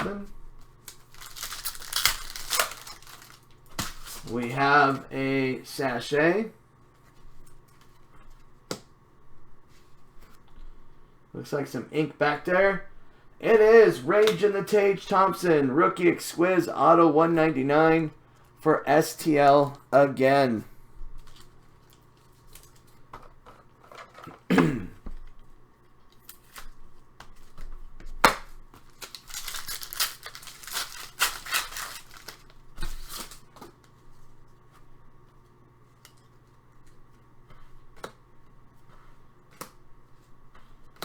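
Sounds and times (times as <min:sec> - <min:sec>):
foil pack tearing: 0:00.8 - 0:04.3, 0:28.9 - 0:33.5
wrapper crinkling: 0:00.8 - 0:04.3, 0:28.8 - 0:33.6.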